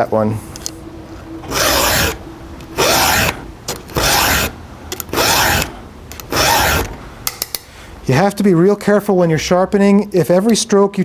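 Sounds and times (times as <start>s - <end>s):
file rasping on chainsaw chain: 1.5s - 2.2s, 2.8s - 5.7s, 6.3s - 6.9s.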